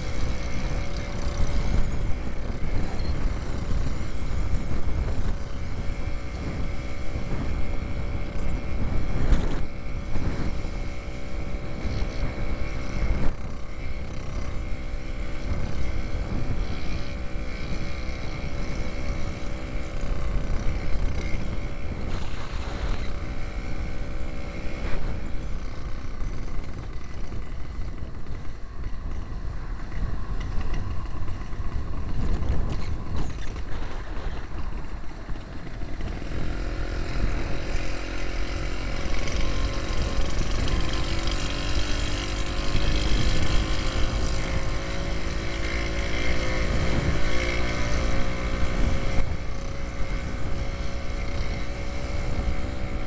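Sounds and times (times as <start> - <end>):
two-stroke engine running: 0.0 - 53.0
wind rumble on microphone: 0.0 - 53.0.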